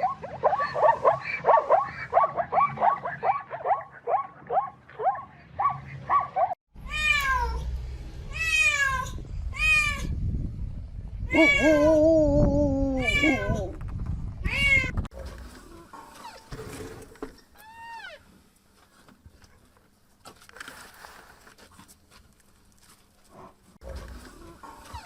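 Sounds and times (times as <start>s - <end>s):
low rumbling noise: 6.8s - 15.1s
animal wailing cries: 11.3s - 11.9s.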